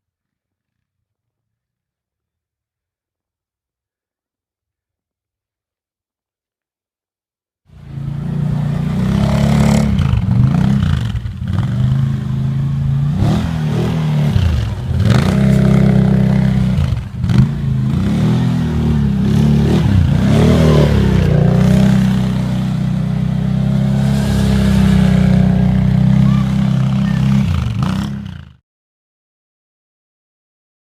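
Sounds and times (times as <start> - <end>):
vehicle engine revving: 7.7 - 28.6.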